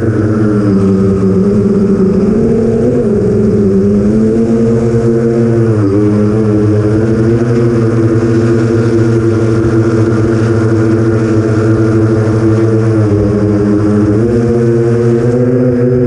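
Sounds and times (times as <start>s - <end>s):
quadcopter motors and propellers: 0.0s - 16.0s.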